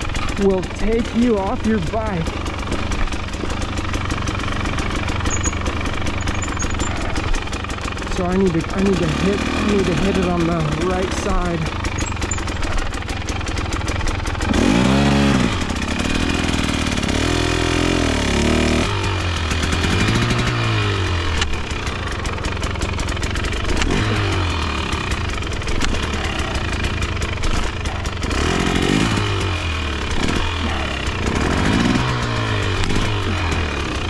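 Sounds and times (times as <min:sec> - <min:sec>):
dirt bike engine revving: 0:00.0 - 0:34.0
mechanical clatter: 0:02.4 - 0:14.6.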